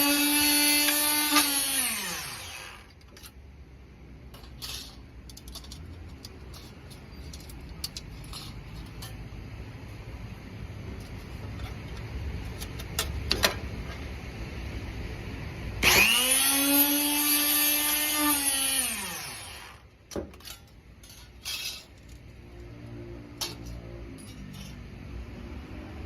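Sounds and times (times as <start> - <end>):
electric motor whine: 0.0 - 2.9, 15.8 - 19.8.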